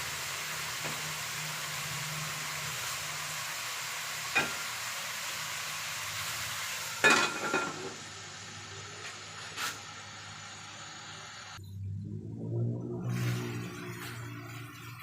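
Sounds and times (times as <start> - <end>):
food sizzling in a pan: 0.0 - 11.6.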